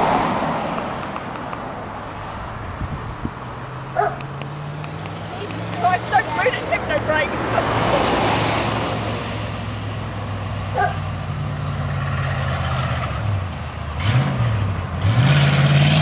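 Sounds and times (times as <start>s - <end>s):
car engine running: 0.0s - 12.1s.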